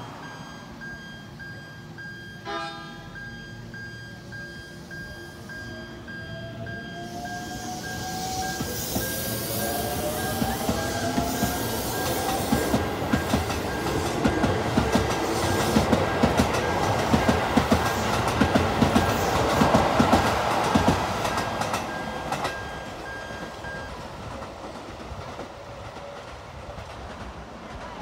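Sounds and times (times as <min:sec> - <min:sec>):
train rumble: 0:00.0 - 0:28.0
train wheels clicking over rail joints: 0:06.6 - 0:28.0.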